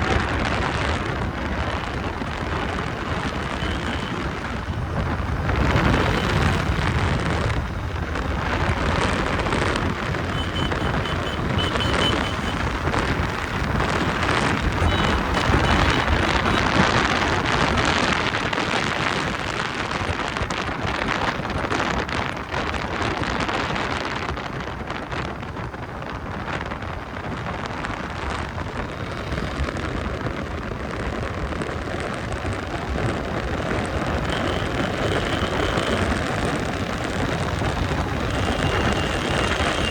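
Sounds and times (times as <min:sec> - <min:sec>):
traffic noise: 0:00.0 - 0:39.9
wind rushing over microphone: 0:00.0 - 0:39.9
motorcycle engine: 0:00.5 - 0:19.5, 0:33.2 - 0:39.9.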